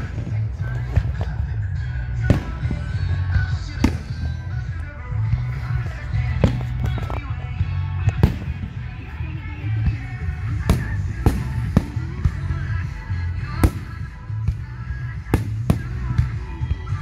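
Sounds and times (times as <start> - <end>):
fireworks bursting in sharp bangs: 0.0 - 1.4, 2.2 - 3.0, 3.7 - 4.8, 8.1 - 8.8, 10.0 - 12.5, 13.4 - 16.5
background music: 0.0 - 17.0.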